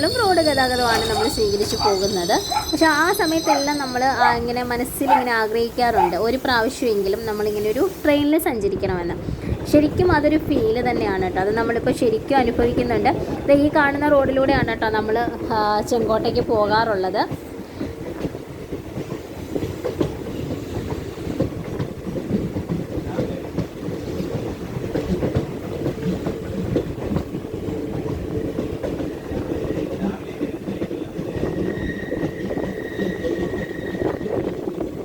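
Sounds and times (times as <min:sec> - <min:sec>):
wheels clacking over rail joints: 0:00.0 - 0:06.8
high steady squeal: 0:00.0 - 0:07.9, 0:31.3 - 0:34.8
train rumble and rattle: 0:00.0 - 0:35.0.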